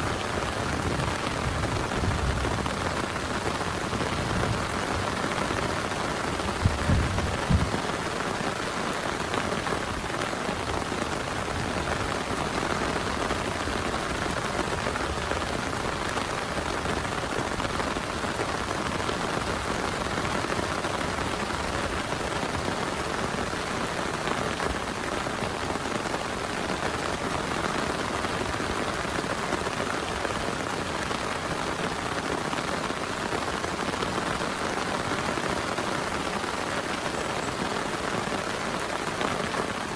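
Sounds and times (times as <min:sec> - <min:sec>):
heavy rain falling: 0:00.0 - 0:39.9
low thuds: 0:06.6 - 0:07.8.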